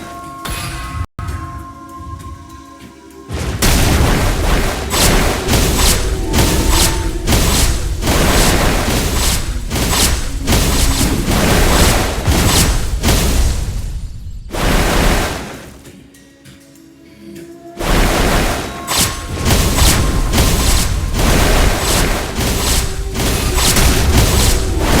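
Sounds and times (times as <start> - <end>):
dramatic music with booming hits: 3.3 - 15.9, 17.8 - 25.0.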